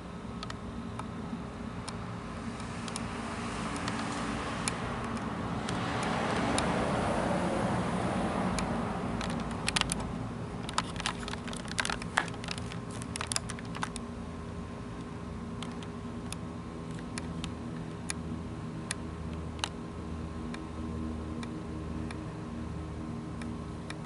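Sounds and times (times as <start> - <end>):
outdoor rushing noise: 2.2 - 10.0.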